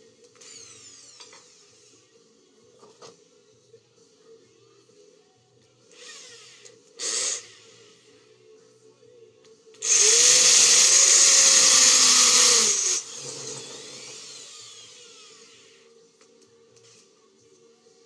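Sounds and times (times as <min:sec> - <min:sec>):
power tool motor running: 0:09.8 - 0:15.8.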